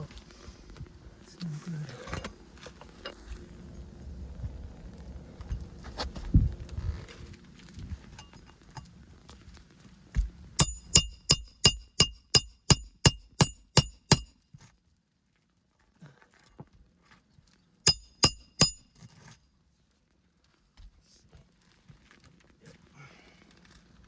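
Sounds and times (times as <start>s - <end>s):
hammer striking a nail: 10.6s - 14.6s, 17.9s - 19.1s.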